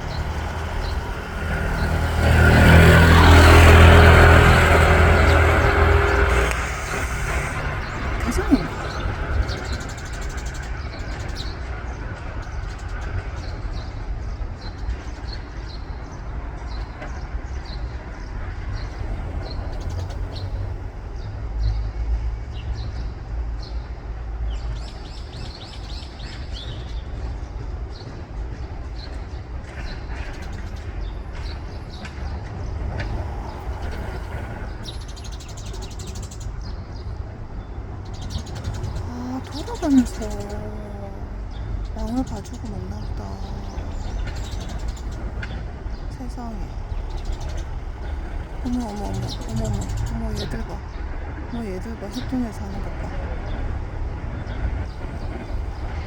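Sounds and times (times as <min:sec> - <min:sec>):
steady low rumble: 0:00.0 - 0:15.1, 0:27.7 - 0:56.0
small birds chirping: 0:00.0 - 0:56.0.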